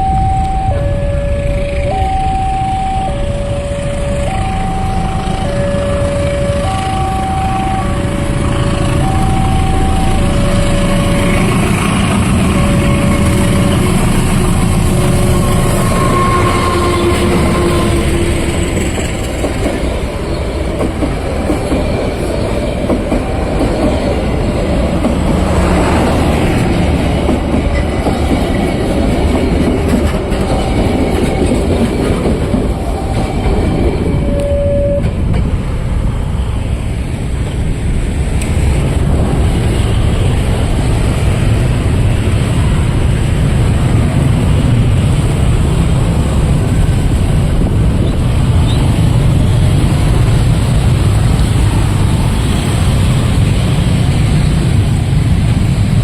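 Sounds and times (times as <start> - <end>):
short pitched tones: 0.0 - 18.3, 32.8 - 35.2
train wheels rumbling on rail: 0.0 - 56.0.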